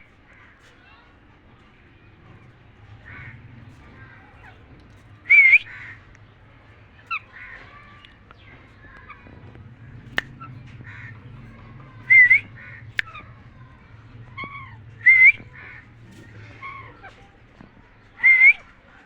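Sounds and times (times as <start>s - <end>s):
sharp clicks: 9.9s - 11.3s
parakeet rising whistles: 12.1s - 13.2s, 15.0s - 15.4s.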